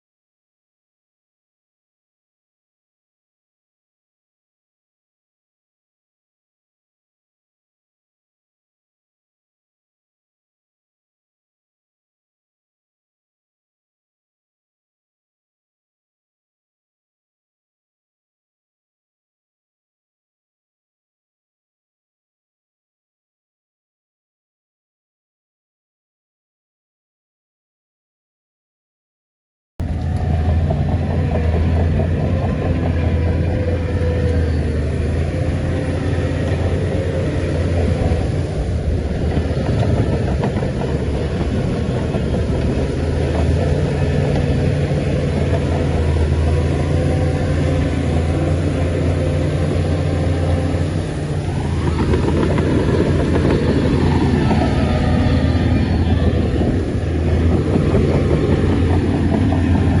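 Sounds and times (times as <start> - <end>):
heavy diesel machinery running: 29.8 - 60.0.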